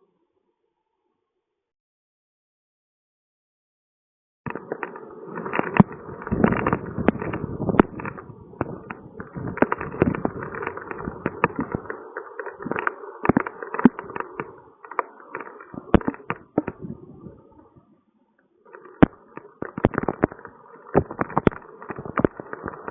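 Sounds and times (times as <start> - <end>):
raindrops tapping hard surface: 4.5 - 16.9, 19.0 - 22.9.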